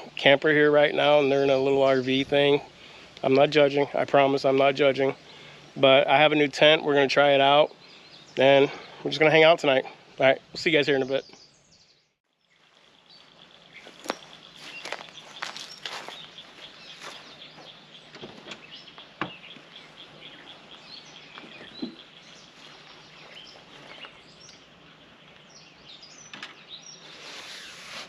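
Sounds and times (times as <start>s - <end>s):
wild birds chirping: 0.0s - 28.0s.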